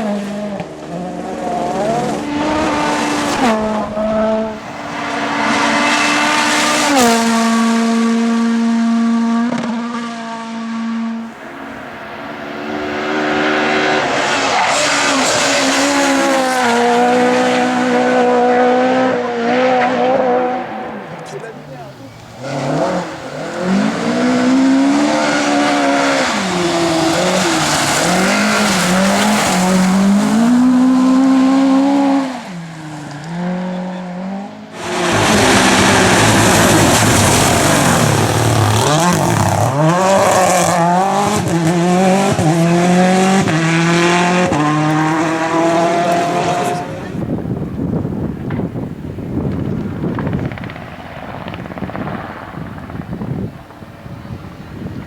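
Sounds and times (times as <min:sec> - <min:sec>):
rally car engines at full throttle: 0:00.0 - 0:55.0.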